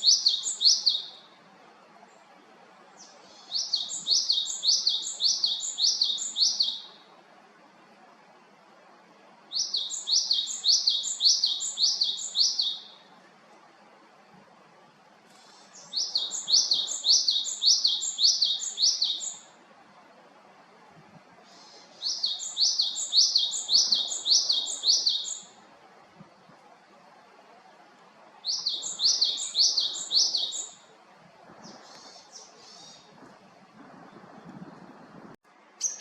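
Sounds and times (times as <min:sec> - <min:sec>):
faint buzzy bird call: 0:02.9 - 0:07.1, 0:15.3 - 0:19.5, 0:21.4 - 0:25.6.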